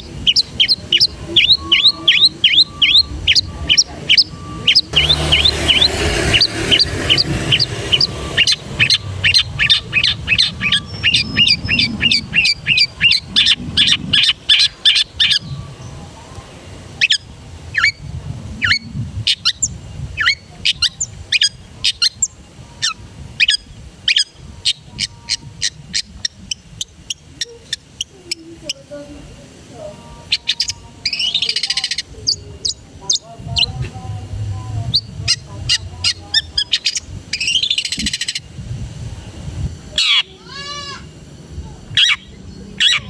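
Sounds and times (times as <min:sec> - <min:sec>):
shrike singing sharp notes: 0:04.9 - 0:11.8.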